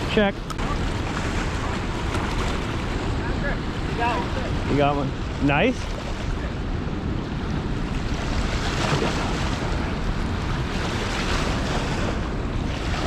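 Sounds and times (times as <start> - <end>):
heavy river current rushing: 0.0 - 13.0.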